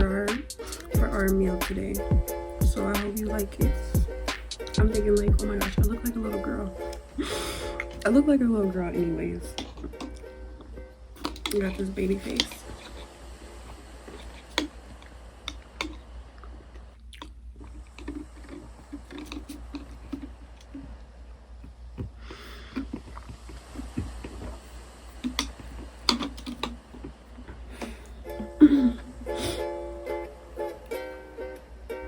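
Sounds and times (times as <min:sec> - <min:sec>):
person chewing food: 0:09.5 - 0:11.6, 0:12.4 - 0:29.7
mouth clicks and smacks: 0:15.5 - 0:18.3, 0:21.6 - 0:24.6.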